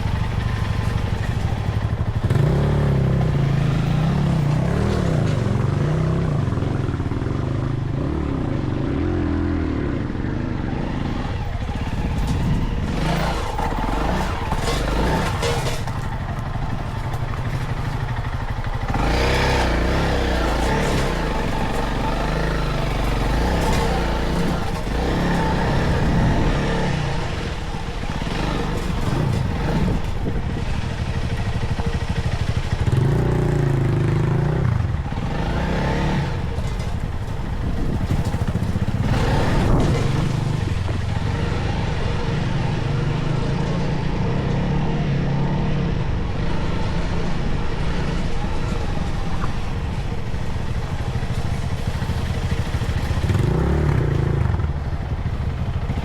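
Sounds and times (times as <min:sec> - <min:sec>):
motorcycle engine revving: 0:00.0 - 0:56.0
rattling: 0:11.5 - 0:30.5.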